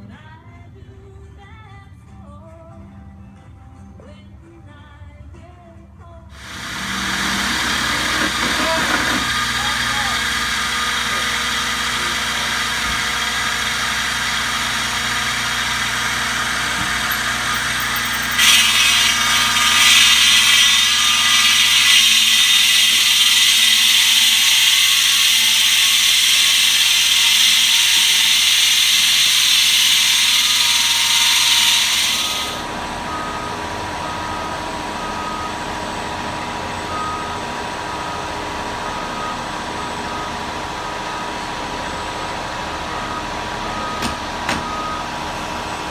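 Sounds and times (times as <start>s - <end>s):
machinery engine running: 6.4s - 45.9s
loud hiss: 16.2s - 32.6s.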